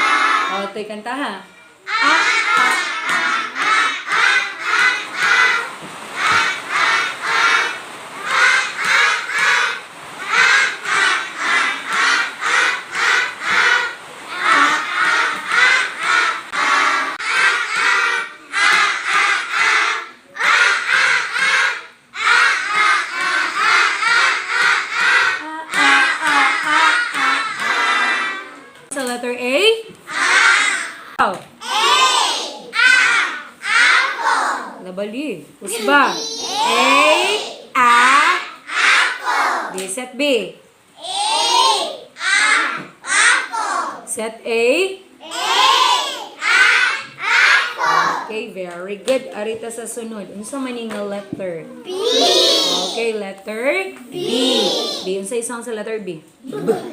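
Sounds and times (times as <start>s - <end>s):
young children singing: 0.0s - 0.6s, 1.8s - 28.9s, 30.0s - 34.8s, 35.7s - 39.8s, 41.0s - 44.0s, 45.2s - 48.3s, 51.9s - 53.1s, 54.0s - 55.1s.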